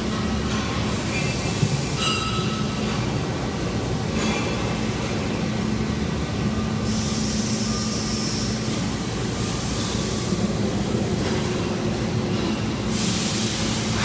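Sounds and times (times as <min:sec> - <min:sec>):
machinery rumble and hiss: 0:00.0 - 0:14.0.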